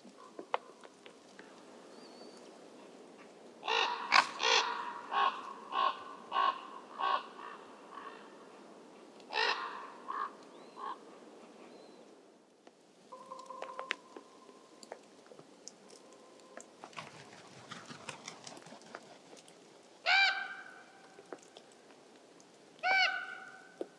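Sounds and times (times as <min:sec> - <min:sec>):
crow cawing: 0:03.6 - 0:08.4, 0:09.3 - 0:11.0, 0:20.1 - 0:20.8, 0:22.8 - 0:23.6.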